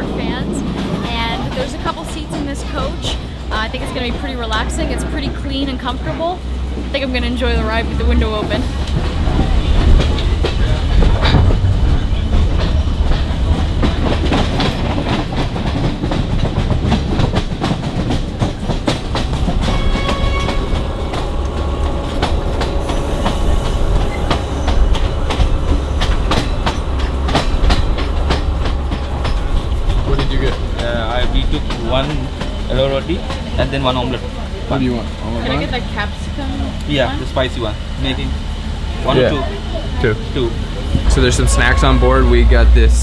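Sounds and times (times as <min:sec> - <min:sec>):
wheels clicking over rail joints: 0:00.0 - 0:35.3
train rumbling along track: 0:00.0 - 0:43.0.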